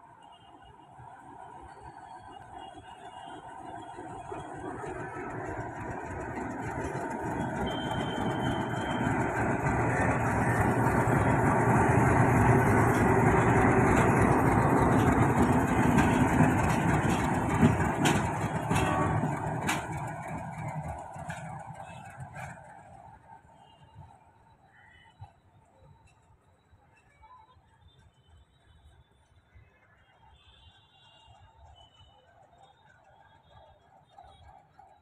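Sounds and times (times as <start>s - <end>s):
diesel locomotive passing: 0.0s - 26.2s.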